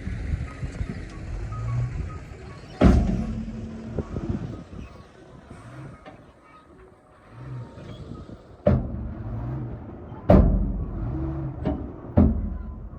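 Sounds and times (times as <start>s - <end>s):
excavator diesel engine running: 0.0s - 6.0s.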